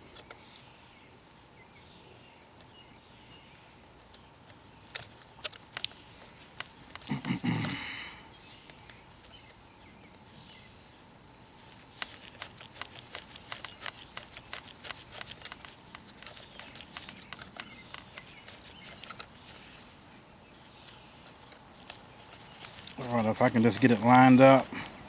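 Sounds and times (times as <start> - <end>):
light clicks and taps of small parts: 4.0 - 7.8, 11.6 - 19.9, 20.8 - 25.0.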